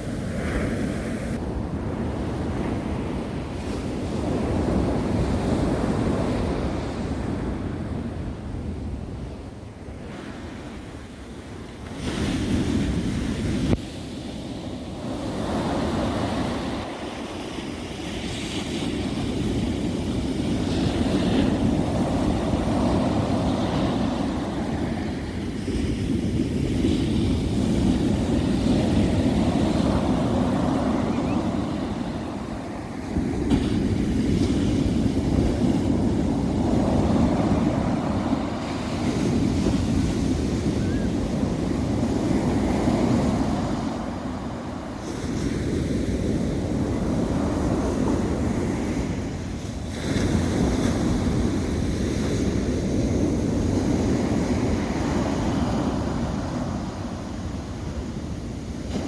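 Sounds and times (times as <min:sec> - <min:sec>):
surf breaking on a sandy beach: 0:00.0 - 0:59.0.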